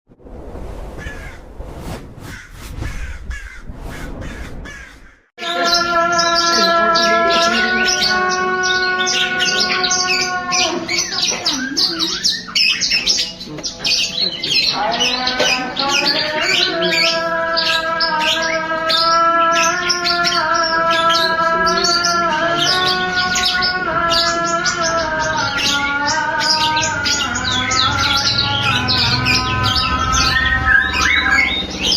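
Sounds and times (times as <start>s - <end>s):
songbird chirping rapidly: 2.3s - 31.9s.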